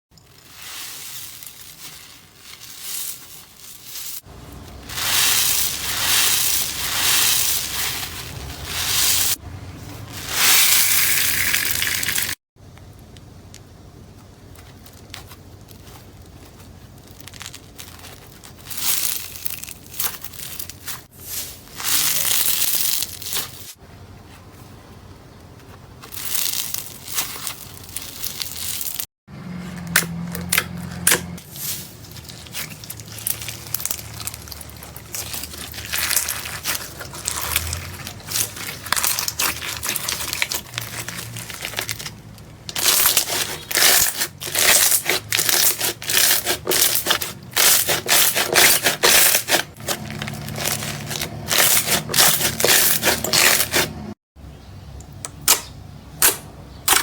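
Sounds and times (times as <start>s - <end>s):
crunchy slime crackling and popping: 0.2s - 9.4s, 14.4s - 21.1s, 21.7s - 23.8s, 26.0s - 29.1s, 29.9s - 54.1s.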